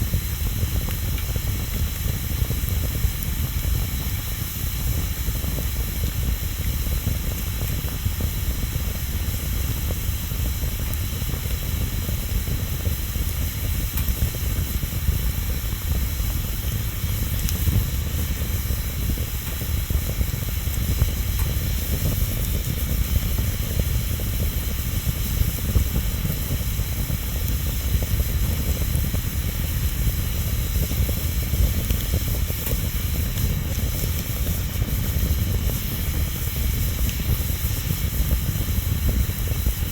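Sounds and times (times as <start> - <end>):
bonfire flames rushing: 0.0 - 39.9
burning wood crackling: 0.0 - 39.9.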